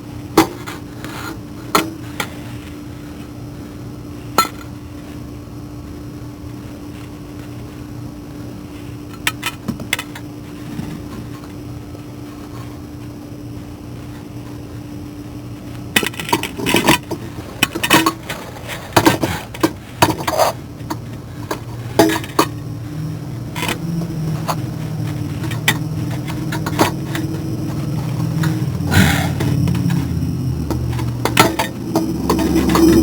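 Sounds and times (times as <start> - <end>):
steady low hum: 0.0 - 33.0
hand tools and metal clinking: 18.8 - 22.6, 23.5 - 33.0.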